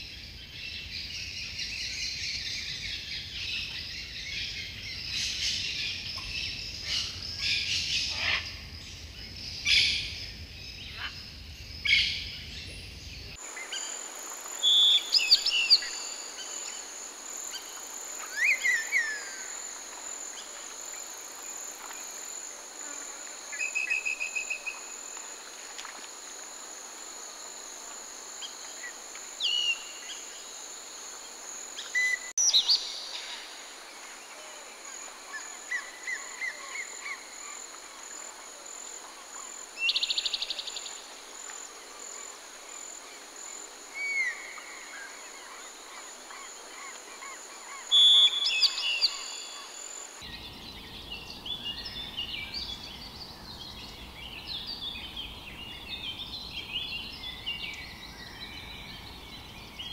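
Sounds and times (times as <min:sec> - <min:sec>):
high insect drone: 0:13.0 - 0:59.9.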